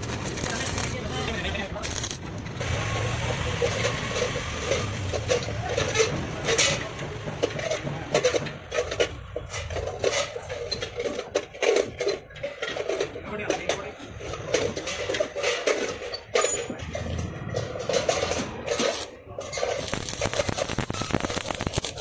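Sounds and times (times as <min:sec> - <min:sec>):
sharp welding pops: 0:00.0 - 0:01.0, 0:01.8 - 0:02.2, 0:19.8 - 0:22.0
welding arc crackling: 0:00.0 - 0:03.3, 0:18.7 - 0:19.1, 0:19.8 - 0:22.0.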